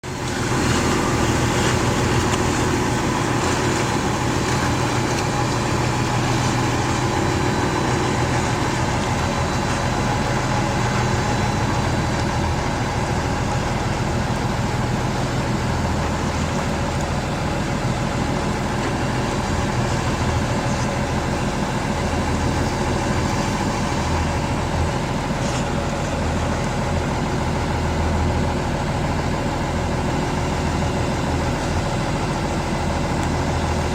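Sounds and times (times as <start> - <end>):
boat engine humming: 0.0 - 33.9.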